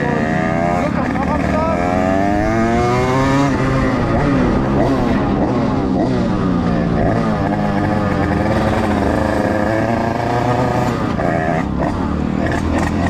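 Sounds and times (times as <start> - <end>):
two-stroke motorcycle engine revving: 0.0 - 13.0.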